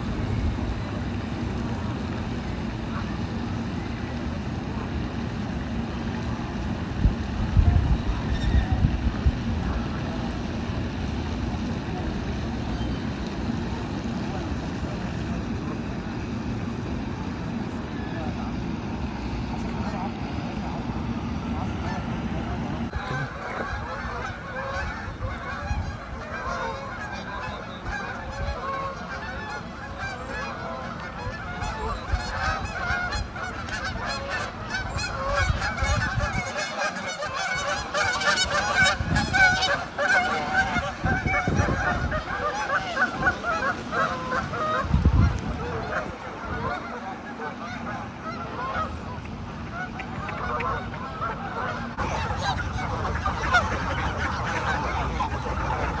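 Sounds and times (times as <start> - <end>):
flock of geese honking: 21.5 - 56.0.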